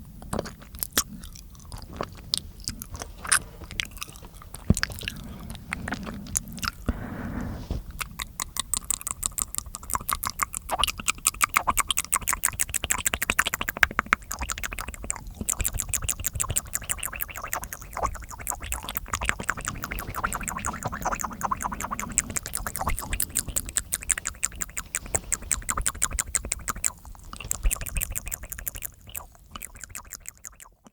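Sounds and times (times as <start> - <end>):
wet mouth clicking and smacking: 0.2 - 6.9, 7.9 - 30.9.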